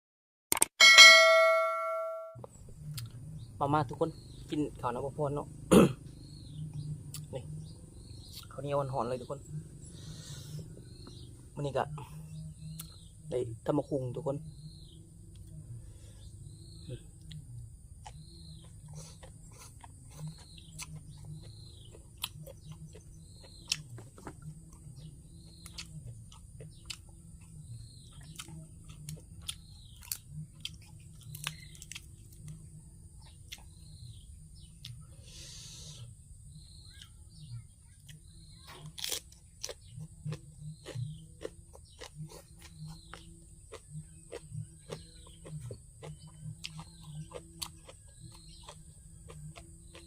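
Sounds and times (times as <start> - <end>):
short high chirp: 0.8 - 2.4
chewing and crunching food: 2.4 - 3.3, 15.2 - 35.1, 35.7 - 50.0.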